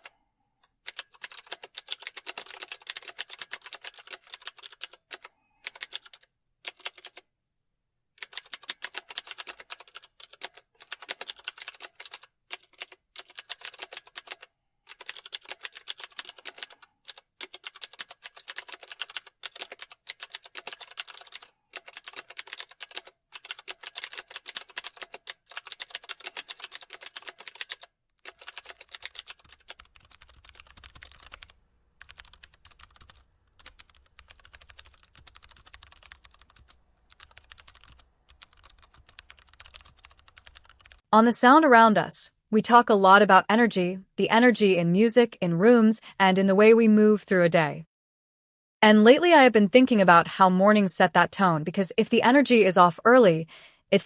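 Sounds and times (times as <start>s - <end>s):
keyboard typing: 0.0s - 7.2s, 8.2s - 41.1s.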